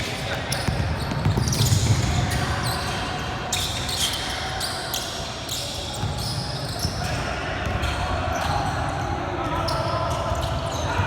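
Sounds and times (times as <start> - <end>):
shoe squeaks: 0.1 - 7.1
basketball bouncing on court: 0.6 - 2.4.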